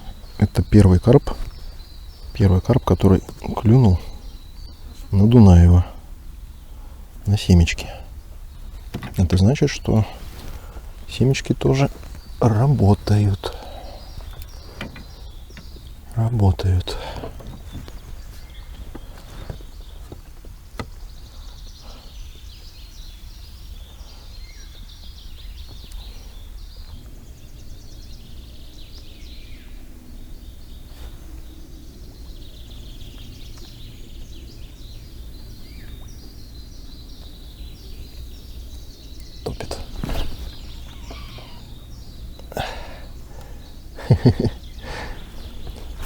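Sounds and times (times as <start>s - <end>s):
birds chirping and trilling: 0.0s - 46.0s
faint clicks: 13.4s - 16.2s.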